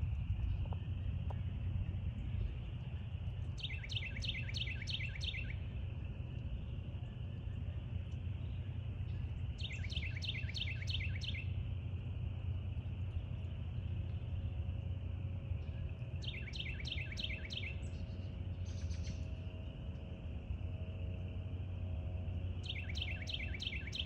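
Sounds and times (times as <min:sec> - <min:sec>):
low outdoor rumble: 0:00.0 - 0:24.0
bird whistling song: 0:03.6 - 0:05.7, 0:09.6 - 0:11.6, 0:15.6 - 0:19.4, 0:22.6 - 0:24.0.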